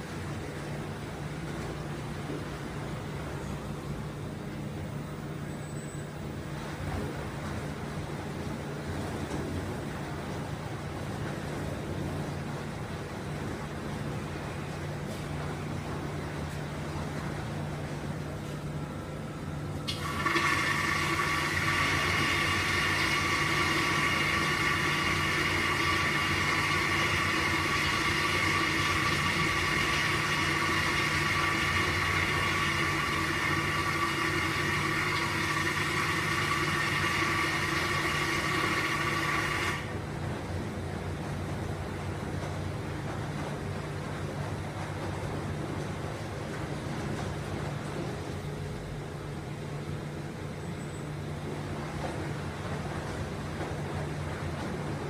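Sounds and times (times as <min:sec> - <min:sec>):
washing machine low hum: 0:00.0 - 0:55.0
water rushing into dispenser: 0:19.9 - 0:40.0.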